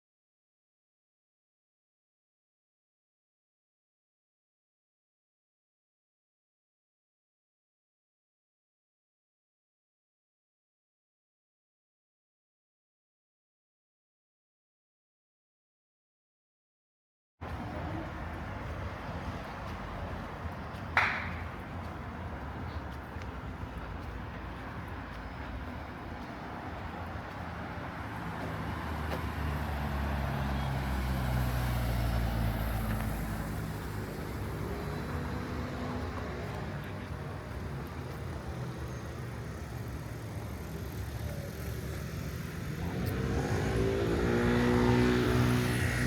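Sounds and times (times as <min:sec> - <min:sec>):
vehicles passing on street: 0:17.4 - 0:46.0
vehicle engine accelerating: 0:25.3 - 0:46.0.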